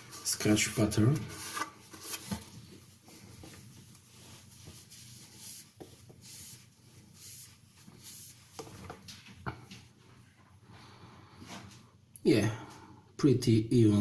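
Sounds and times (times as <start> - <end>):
rubbing and rustling handling noise: 0.0 - 10.6.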